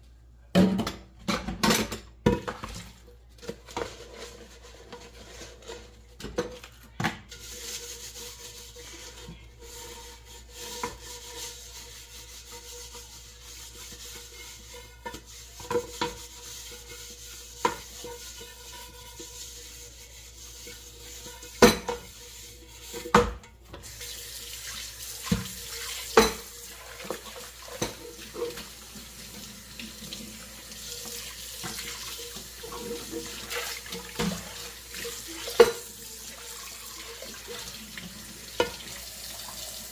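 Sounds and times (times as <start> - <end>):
dishes and cutlery clinking: 20.6 - 22.2, 25.3 - 28.8.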